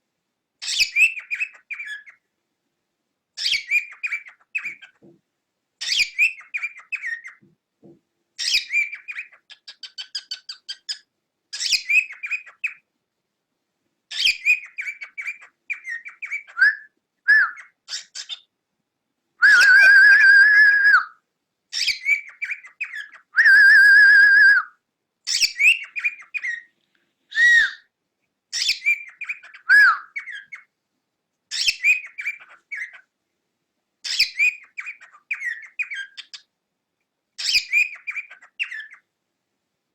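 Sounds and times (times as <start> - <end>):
cockatiel chirping and warbling: 0.6 - 2.2, 3.4 - 5.1, 5.8 - 7.4, 8.4 - 12.8, 14.1 - 18.5, 19.4 - 21.1, 21.7 - 24.6, 25.3 - 26.7, 27.3 - 27.9, 28.5 - 30.7, 31.5 - 33.1, 34.0 - 36.5, 37.4 - 39.1
cockatiel long whistles: 14.4 - 17.7, 19.4 - 21.2, 21.8 - 26.6, 27.3 - 27.9, 28.8 - 30.4.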